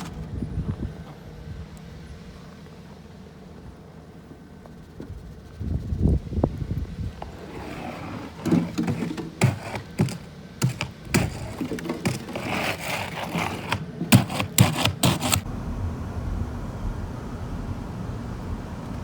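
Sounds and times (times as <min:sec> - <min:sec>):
icy snow crunching and cracking: 0:07.1 - 0:15.6.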